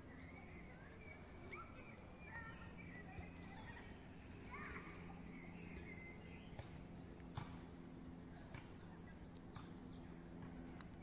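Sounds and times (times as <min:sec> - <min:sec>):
faint high bird chirps: 0:00.0 - 0:06.9
steady low hum: 0:00.0 - 0:11.0.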